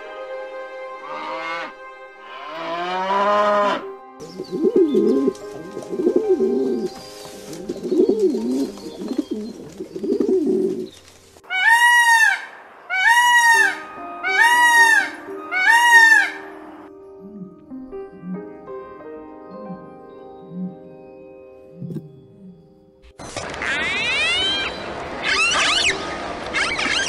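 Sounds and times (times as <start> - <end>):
peacock calling: 4.2 - 17.5, 23.4 - 27.0
pigeon cooing: 4.3 - 6.9, 7.6 - 10.9, 20.5 - 20.8.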